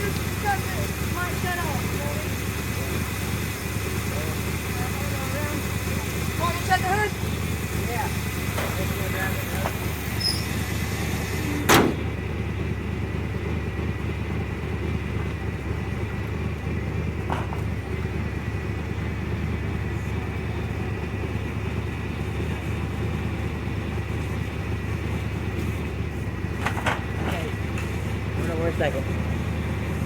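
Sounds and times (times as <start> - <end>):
vehicle engine idling: 0.0 - 30.0
sharp bang: 11.6 - 12.1.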